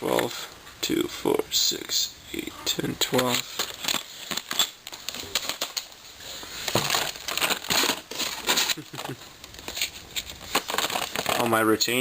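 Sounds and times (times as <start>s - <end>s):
parts clicking and rattling: 3.0s - 11.6s
plastic packaging crinkling: 3.1s - 12.0s.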